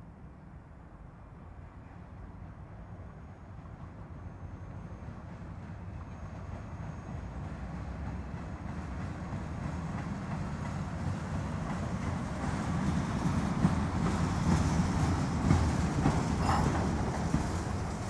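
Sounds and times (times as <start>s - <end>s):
freight train wheels rumbling: 1.4s - 18.0s
wheels clacking: 13.6s - 18.0s.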